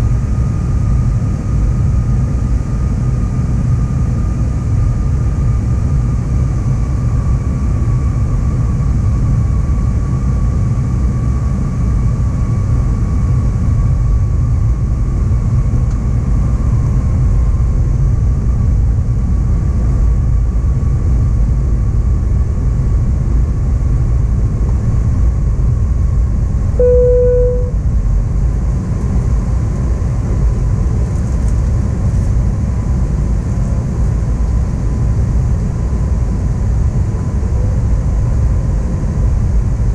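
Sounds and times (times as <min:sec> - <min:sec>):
airplane cabin engine rumble: 0:26.8 - 0:27.7
cabin chime: 0:26.8 - 0:27.7.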